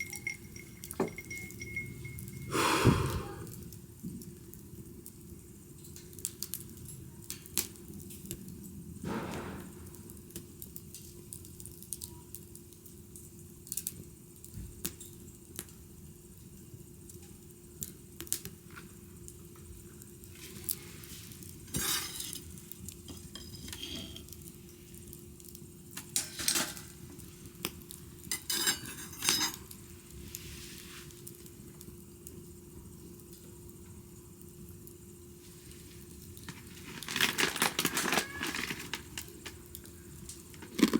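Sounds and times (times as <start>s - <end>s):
faint steady hum: 0.0s - 9.0s
wood fire crackling: 0.0s - 40.9s.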